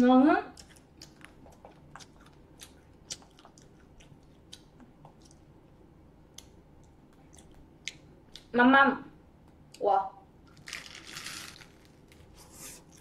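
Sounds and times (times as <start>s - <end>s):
chewing mouth sounds: 0.6s - 5.5s, 6.4s - 8.5s.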